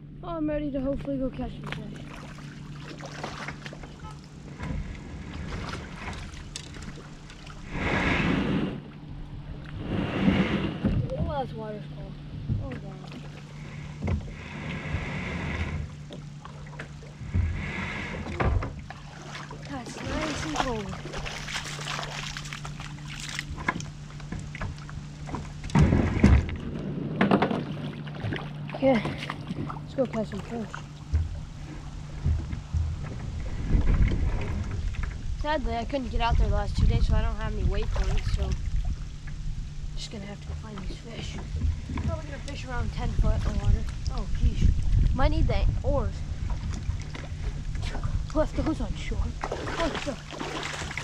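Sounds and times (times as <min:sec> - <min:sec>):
low hum: 0:00.0 - 0:51.0
wind and water rumble: 0:00.0 - 0:51.0
rushing water: 0:01.6 - 0:08.8, 0:12.6 - 0:51.0
kayak hull knocking: 0:23.5 - 0:30.2, 0:31.0 - 0:35.3
loud low thump: 0:25.7 - 0:27.7.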